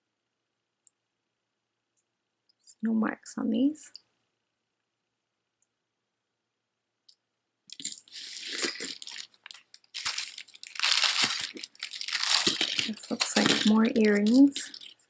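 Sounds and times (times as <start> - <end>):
packaging crinkling and rustling: 7.7 - 15.0.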